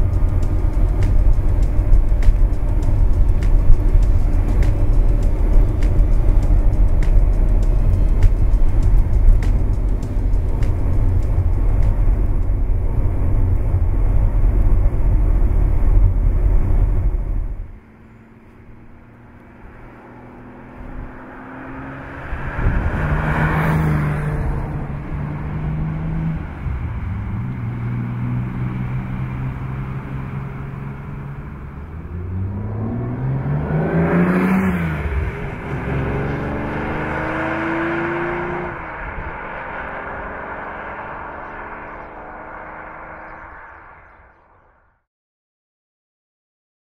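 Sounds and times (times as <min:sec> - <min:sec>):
loud low rumble: 0:00.0 - 0:17.8, 0:18.6 - 0:45.0
sports car passing by: 0:00.0 - 0:44.9.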